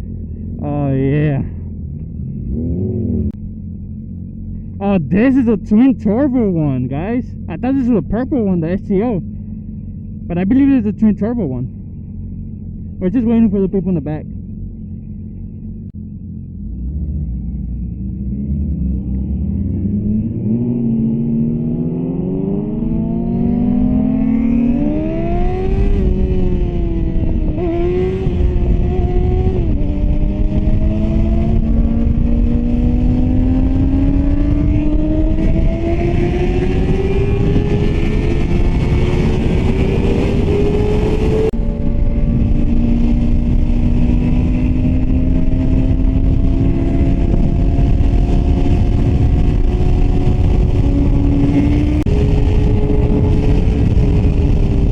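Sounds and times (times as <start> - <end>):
motorcycle engine accelerating: 0.0 - 54.9
wind rumble on microphone: 14.2 - 54.9.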